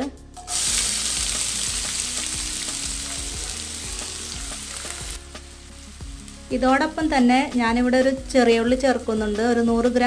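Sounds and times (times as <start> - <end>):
onions sizzling in hot oil: 0.4 - 8.4.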